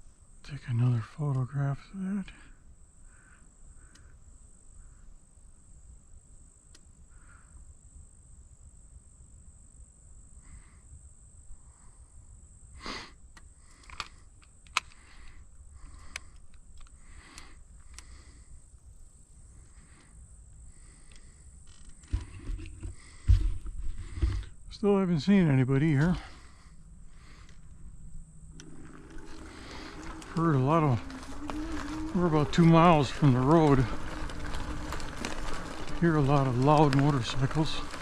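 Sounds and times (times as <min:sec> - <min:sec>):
high-pitched insect drone: 0:24.2 - 0:38.0.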